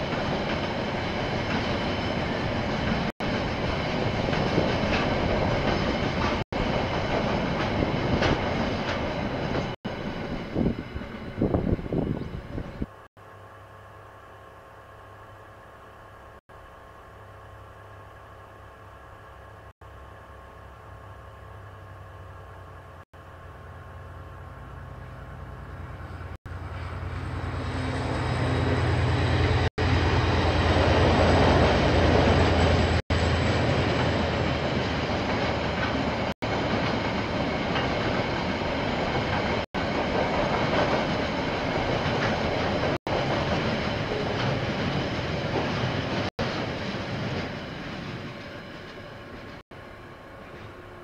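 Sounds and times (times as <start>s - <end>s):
train wagons rumbling on rails: 0.0s - 13.0s, 20.9s - 51.0s
locomotive engine hum: 0.0s - 51.0s.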